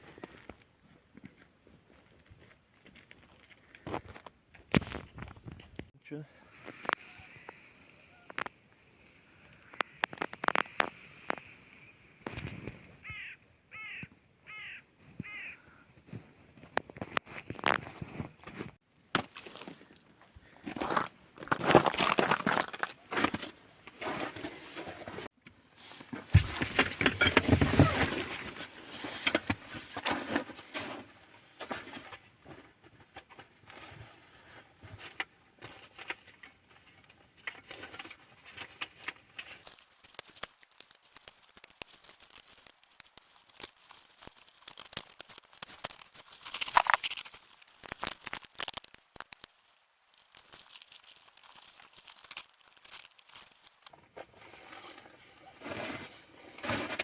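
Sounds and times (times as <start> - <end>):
wrapping crinkling and tearing: 37.6 - 53.9.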